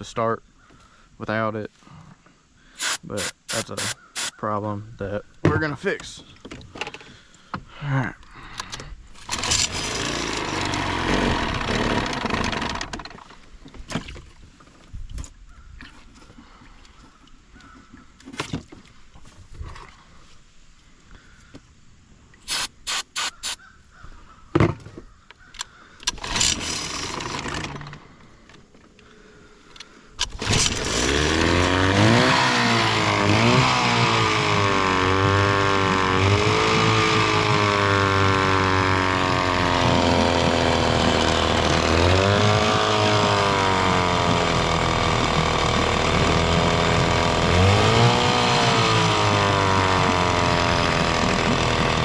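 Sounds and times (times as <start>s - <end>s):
outboard motor running: 2.8s - 4.4s, 8.4s - 14.3s, 22.5s - 23.6s, 26.2s - 28.4s, 30.2s - 52.0s.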